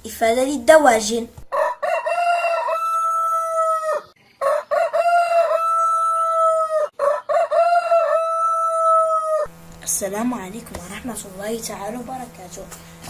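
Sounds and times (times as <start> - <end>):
rooster crowing: 1.5 - 9.5.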